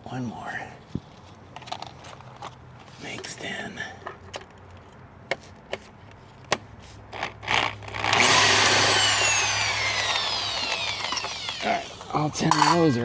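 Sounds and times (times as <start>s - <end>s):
power tool motor whirring: 8.0s - 12.9s.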